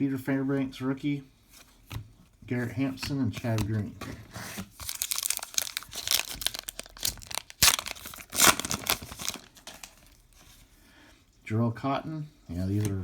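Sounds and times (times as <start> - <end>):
wrapper crinkling and tearing: 4.6 - 10.2.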